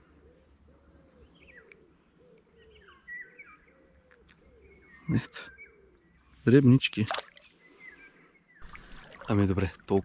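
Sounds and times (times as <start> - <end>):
bird cooing: 0.0 - 6.0
bird chirps: 0.3 - 10.0.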